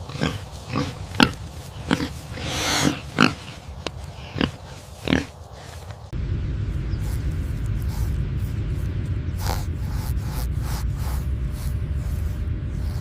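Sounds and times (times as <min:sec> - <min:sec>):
pig grunting: 0:00.0 - 0:05.8
pig snort: 0:00.0 - 0:05.8, 0:09.4 - 0:12.2
steady low rumble: 0:00.0 - 0:13.0.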